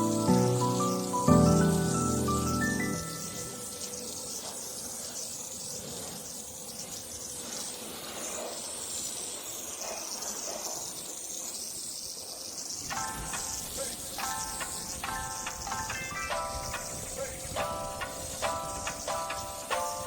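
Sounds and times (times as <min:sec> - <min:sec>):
music: 0:00.0 - 0:04.3, 0:12.9 - 0:20.0
water spraying hiss: 0:00.0 - 0:20.0.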